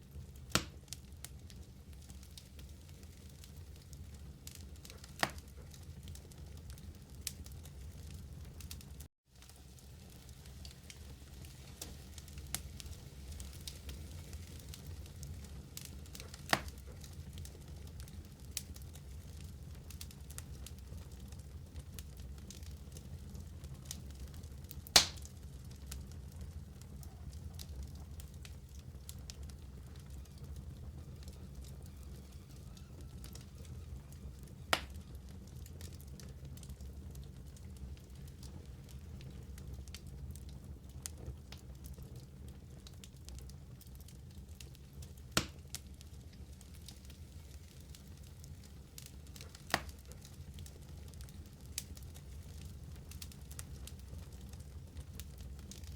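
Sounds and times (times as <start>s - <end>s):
fire crackling: 0.0s - 55.9s
fire low rumble: 0.0s - 55.9s
loud sharp pop: 25.0s - 25.2s.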